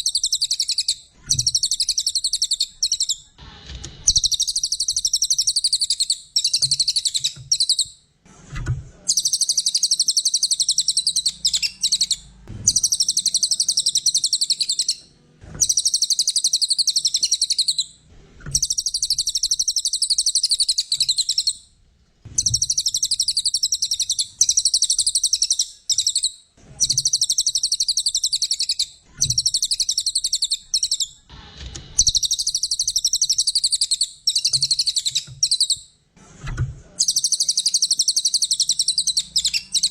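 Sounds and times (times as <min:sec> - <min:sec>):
songbird chattering trills: 0:09.1 - 0:15.0.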